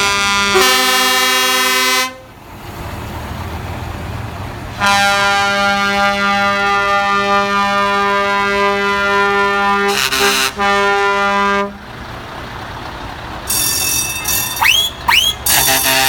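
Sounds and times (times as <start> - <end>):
truck air horn blaring: 0.0 - 2.3, 4.8 - 11.9, 13.5 - 16.0
truck engine rumble: 0.0 - 16.0.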